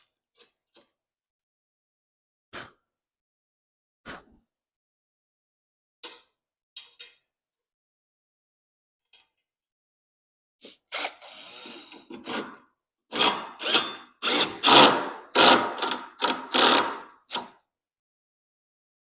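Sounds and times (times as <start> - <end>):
power drill driving screw into wood: 11.4 - 17.5.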